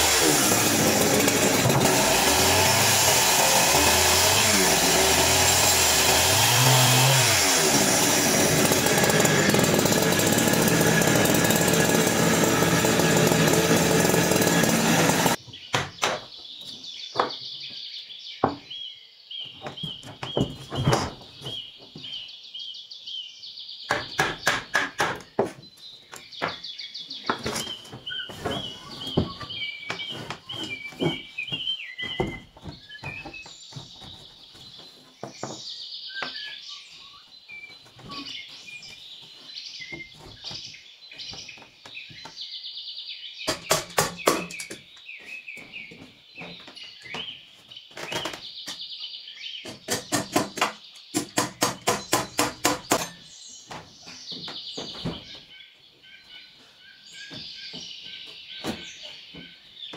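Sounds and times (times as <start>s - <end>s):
small birds chirping: 15.4s - 59.9s
tool striking sharp knocks: 23.9s - 25.6s, 43.5s - 44.8s, 49.7s - 53.2s.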